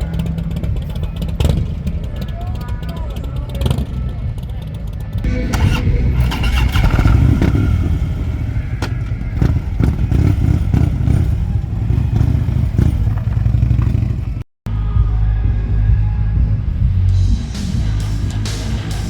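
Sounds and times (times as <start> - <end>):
motorcycle engine rumbling: 0.0 - 14.5.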